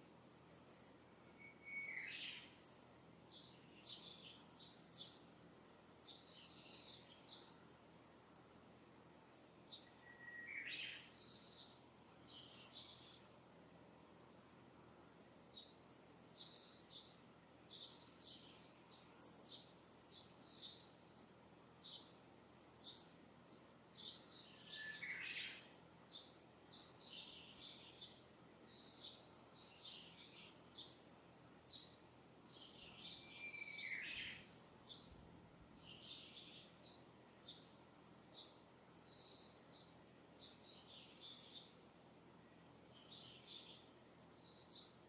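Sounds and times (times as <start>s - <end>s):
faint steady hiss: 0.0s - 45.0s
birds chirping: 0.5s - 5.4s, 6.0s - 7.5s, 9.2s - 13.4s, 15.5s - 21.1s, 22.8s - 31.0s, 31.6s - 35.2s, 35.8s - 41.8s.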